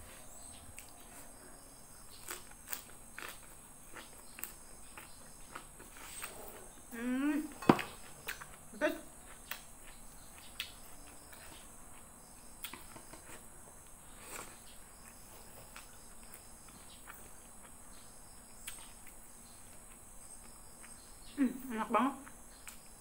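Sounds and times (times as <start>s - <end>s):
soft chewing sounds: 0.0s - 21.4s, 22.2s - 23.0s
insects chirring: 0.0s - 23.0s.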